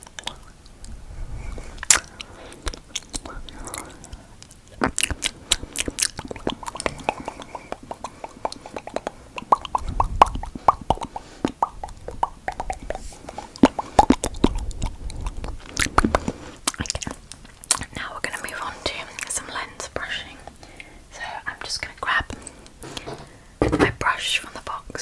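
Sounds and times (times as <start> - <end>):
tongue clicking: 1.8 - 17.9.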